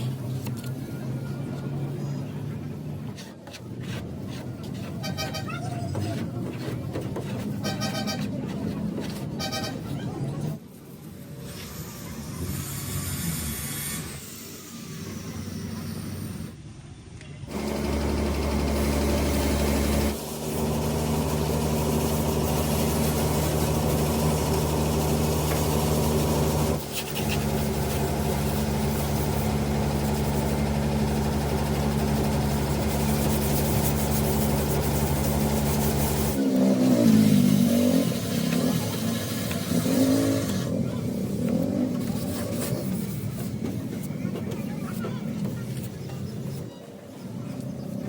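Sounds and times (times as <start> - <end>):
car engine running: 17.5 - 42.3.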